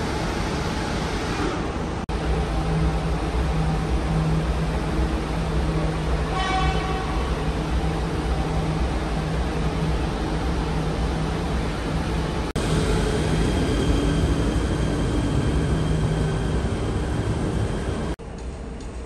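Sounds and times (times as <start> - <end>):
train rumble and hum: 0.0 - 19.0
train horn toot: 6.3 - 7.5.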